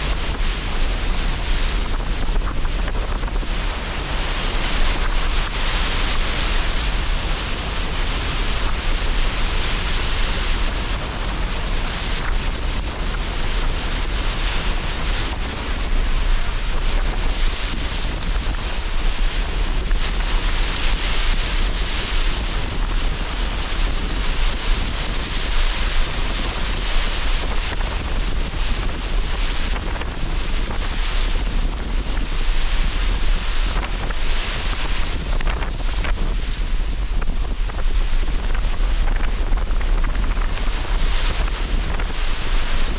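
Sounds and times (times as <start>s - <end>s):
gusting wind: 0.0s - 42.9s
surf breaking on shore: 0.0s - 42.9s.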